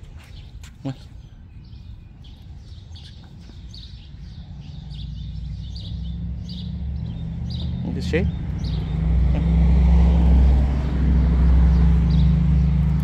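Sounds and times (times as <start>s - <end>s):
small birds chirping: 0.0s - 9.7s, 10.7s - 13.0s.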